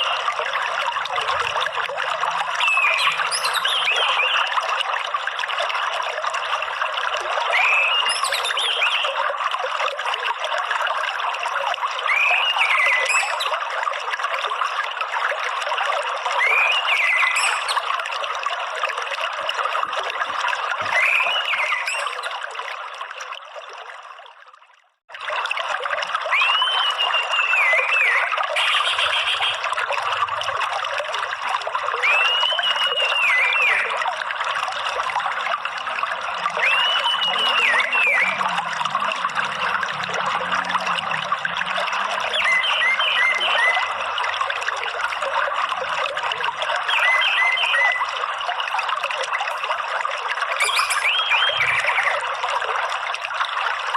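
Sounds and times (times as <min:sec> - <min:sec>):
trickling water: 0:00.0 - 0:53.9
bird whistling: 0:26.4 - 0:29.6, 0:32.0 - 0:33.9, 0:36.6 - 0:38.4, 0:42.3 - 0:43.8, 0:50.6 - 0:52.1.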